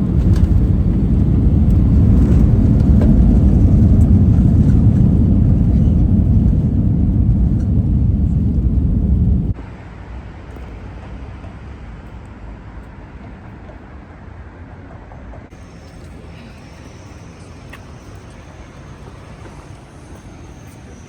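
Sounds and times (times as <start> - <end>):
low vehicle rumble: 0.0 - 9.7
faint high whine: 15.6 - 21.0.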